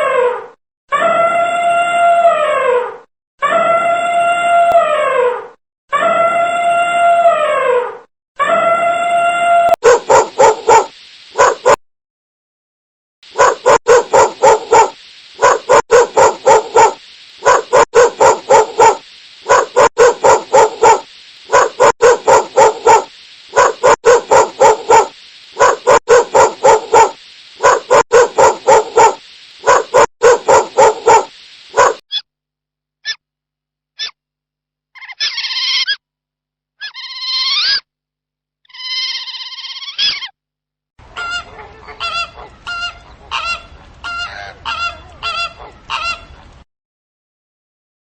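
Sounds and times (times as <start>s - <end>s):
dog yapping: 9.8s - 11.8s, 13.4s - 32.0s.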